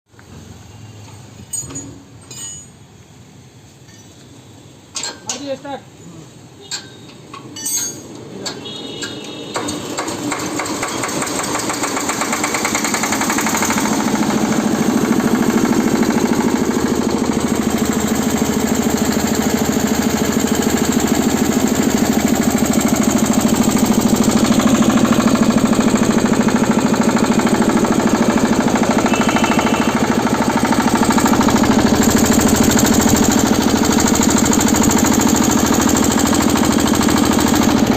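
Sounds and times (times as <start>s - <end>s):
rice huller engine running: 10.7s - 37.9s.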